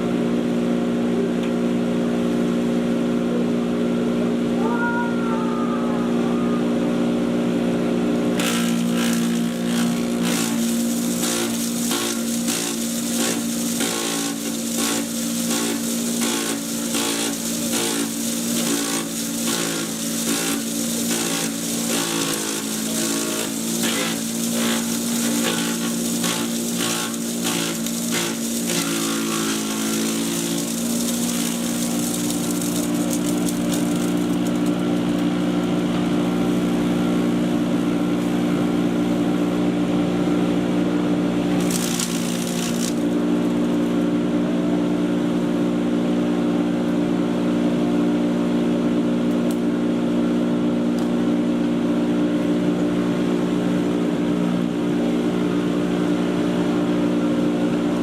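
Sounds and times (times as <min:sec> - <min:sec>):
chipper shredder humming: 0:00.0 - 0:58.0
sharp cracks of material: 0:08.3 - 0:35.8, 0:41.6 - 0:43.9.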